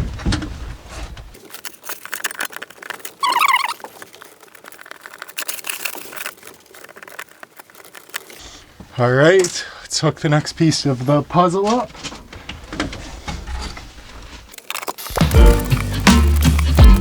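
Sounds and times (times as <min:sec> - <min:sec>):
plastic film crackling as peeled: 0:01.4 - 0:08.6, 0:14.4 - 0:17.0
short wavering squeak: 0:03.2 - 0:03.9.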